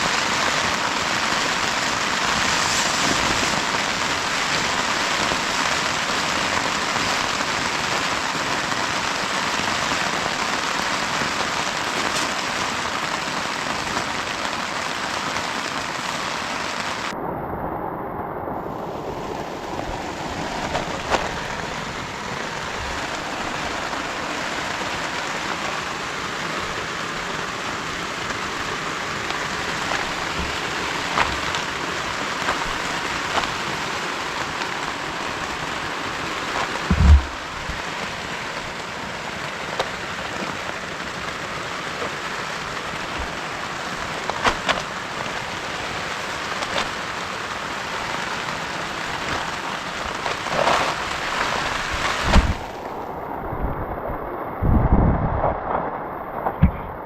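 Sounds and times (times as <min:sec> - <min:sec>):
heavy rain: 0:00.0 - 0:57.0
dull thump: 0:36.9 - 0:37.4.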